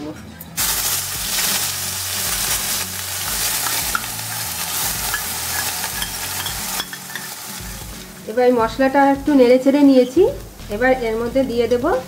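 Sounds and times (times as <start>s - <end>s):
spice paste sizzling in oil: 0.6s - 10.8s.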